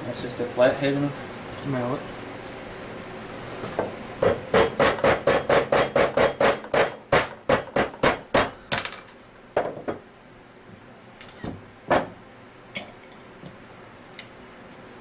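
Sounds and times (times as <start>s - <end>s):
mallet striking a screwdriver: 4.2s - 8.5s.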